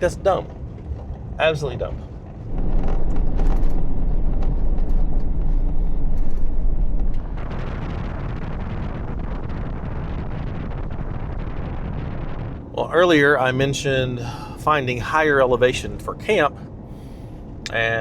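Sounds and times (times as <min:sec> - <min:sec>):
truck rumbling on dirt road: 0:00.0 - 0:12.8
rattles and clicks: 0:02.2 - 0:09.2.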